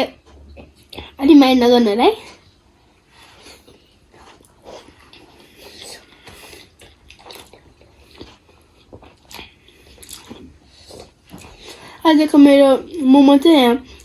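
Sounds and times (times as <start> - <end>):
wet chewing and mouth clicks: 3.2 - 12.0.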